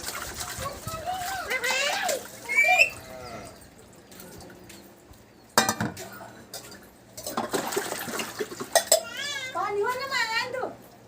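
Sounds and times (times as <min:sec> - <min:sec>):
dishes rattling and clattering: 0:05.6 - 0:09.2.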